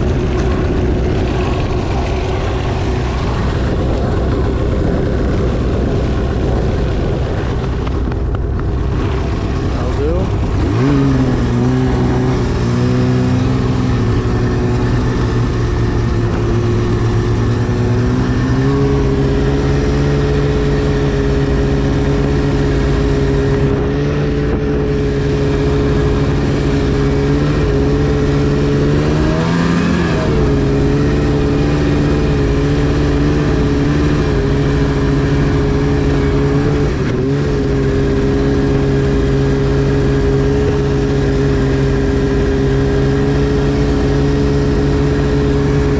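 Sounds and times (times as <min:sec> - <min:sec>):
snowmobile engine running: 0:00.0 - 0:45.9.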